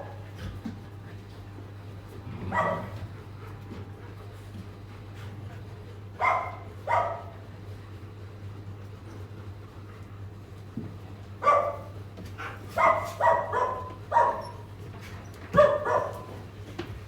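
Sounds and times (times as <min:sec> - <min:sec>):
dog barking: 0:02.4 - 0:03.0, 0:06.2 - 0:07.4, 0:11.4 - 0:14.7, 0:15.6 - 0:16.4.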